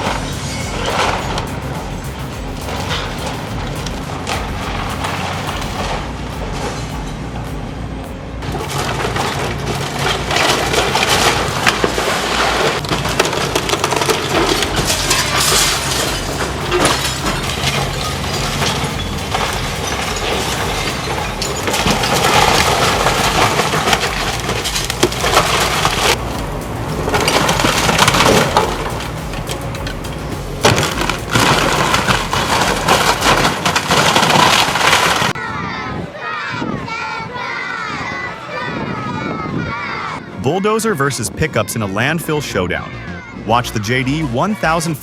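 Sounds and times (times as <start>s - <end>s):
heavy machine engine running: 0.0s - 35.4s
wood splintering and cracking: 8.4s - 35.4s
glass breaking: 8.5s - 35.4s.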